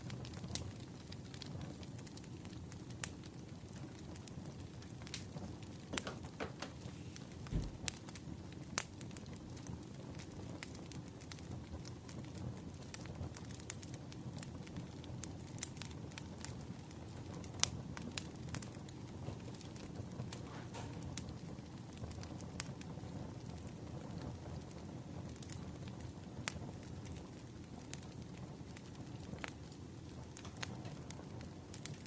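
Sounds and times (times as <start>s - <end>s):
low fire rumble: 0.0s - 32.0s
wood fire crackling: 0.0s - 32.0s
sharp pops and snaps: 5.0s - 11.3s.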